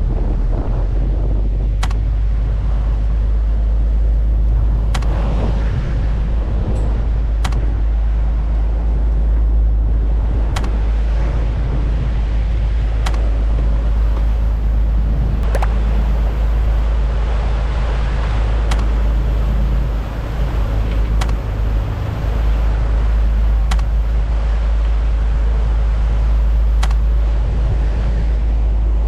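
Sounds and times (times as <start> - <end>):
boat engine low rumble: 0.0 - 29.0
faint sharp clicks: 1.8 - 2.0, 4.8 - 5.1, 6.8 - 7.7, 10.5 - 10.8, 13.0 - 13.3, 18.6 - 18.9, 20.8 - 21.4, 23.6 - 24.0, 26.8 - 27.1.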